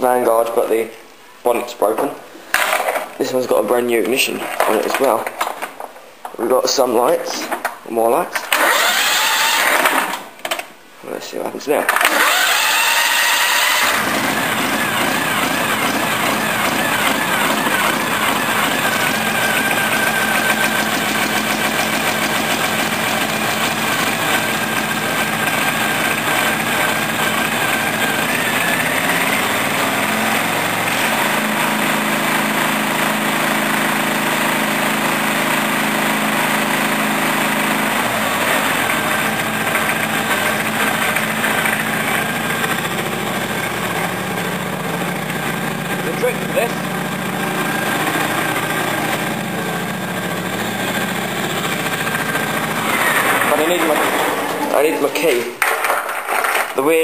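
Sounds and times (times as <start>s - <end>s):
ride-on mower engine running: 8.6s - 10.0s, 12.1s - 55.1s.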